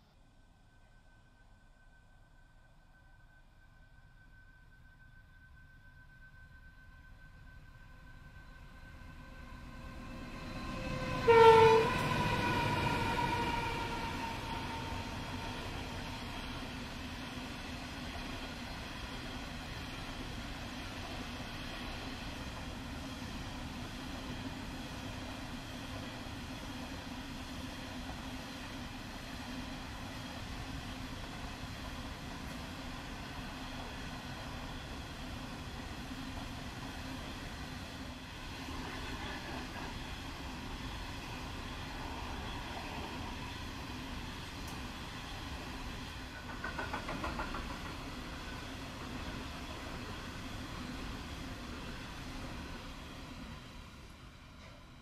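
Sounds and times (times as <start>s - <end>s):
steel wheels running on rails: 8.2s - 55.0s
wagons rumbling on rails: 38.5s - 52.9s.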